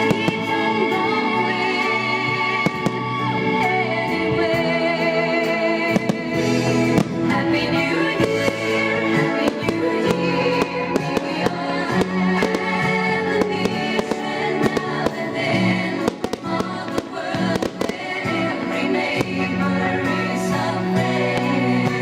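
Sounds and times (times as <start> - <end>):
fireworks banging: 0.0 - 0.6, 2.5 - 3.2, 5.9 - 20.3
music: 0.0 - 22.0.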